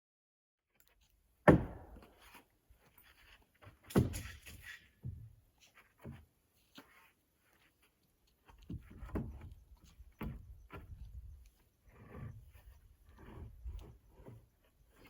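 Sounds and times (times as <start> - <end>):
heavy thumps and knocks: 1.5 - 2.1.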